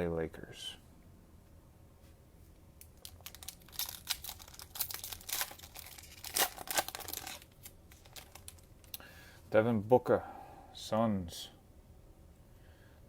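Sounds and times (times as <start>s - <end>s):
cellophane wrapper tearing and crinkling: 2.8s - 9.0s.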